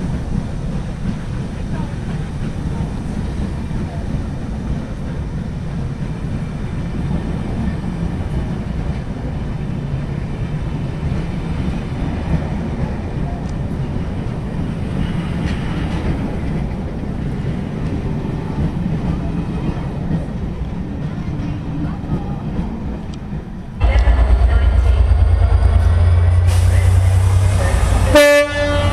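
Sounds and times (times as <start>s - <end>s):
train low rumble: 0.0s - 28.9s
burst of high-pitched noise: 23.8s - 28.1s.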